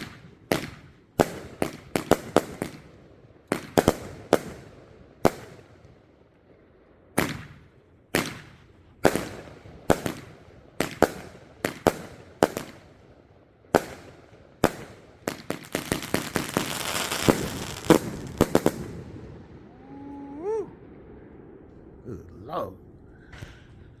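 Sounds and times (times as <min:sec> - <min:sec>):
firework bangs: 0:13.8 - 0:19.8.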